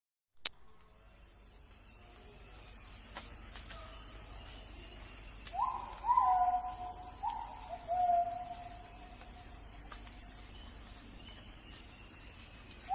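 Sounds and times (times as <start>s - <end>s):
high insect drone: 0.6s - 12.9s
bird calling: 5.5s - 8.9s.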